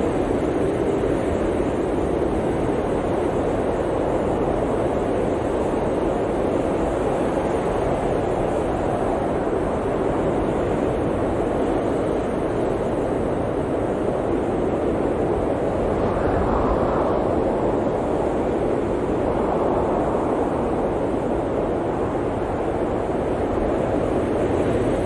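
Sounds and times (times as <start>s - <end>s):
blizzard wind rushing: 0.0s - 25.0s.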